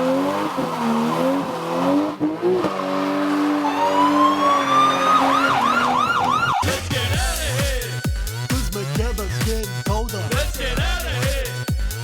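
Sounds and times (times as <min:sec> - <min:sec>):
police siren warble: 0:03.2 - 0:07.6.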